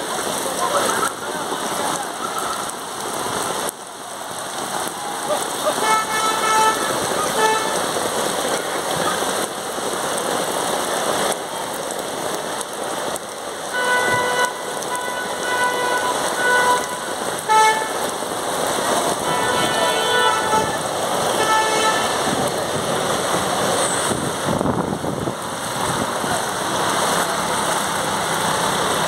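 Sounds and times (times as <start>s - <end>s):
heavy rain pouring: 0.0s - 29.0s
vehicle horn: 5.8s - 8.0s, 13.7s - 18.1s, 19.1s - 22.4s.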